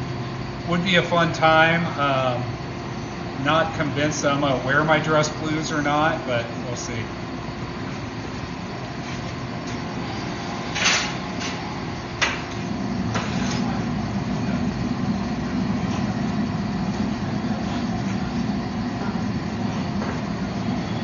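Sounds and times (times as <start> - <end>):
low hum: 5.6 - 21.0
machinery running: 7.8 - 21.0.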